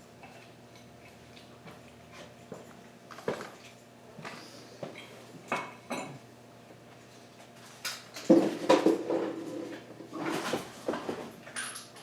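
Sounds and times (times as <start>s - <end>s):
metal tools clinking and clattering: 11.5s - 12.0s.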